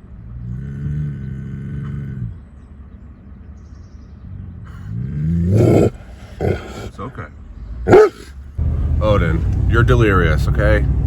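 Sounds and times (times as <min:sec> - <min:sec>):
dog moaning: 0:04.7 - 0:07.0, 0:07.9 - 0:08.3.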